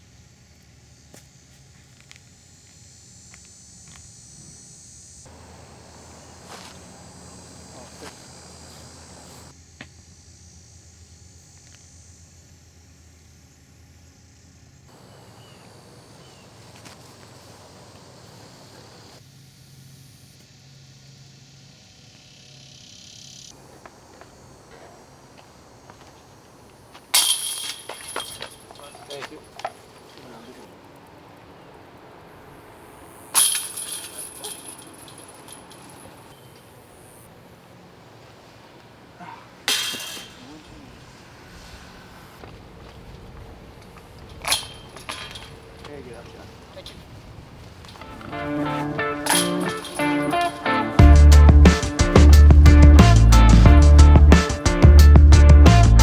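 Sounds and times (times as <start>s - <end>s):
insect drone: 0.0s - 53.7s
disc striking metal chains: 5.3s - 9.5s, 15.0s - 19.2s, 26.9s - 31.1s, 33.1s - 36.8s, 39.6s - 41.2s, 44.2s - 45.9s, 47.8s - 54.9s
chains jangling: 15.0s - 19.1s, 27.1s - 30.2s, 33.3s - 36.5s, 44.2s - 45.9s, 48.0s - 53.5s.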